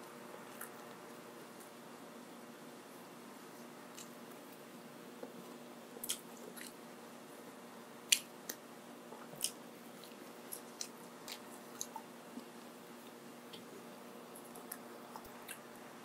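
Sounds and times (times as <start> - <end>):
faint steady hum: 0.0 - 16.0
chewing mouth clicks and smacks: 6.0 - 6.8, 8.1 - 12.5.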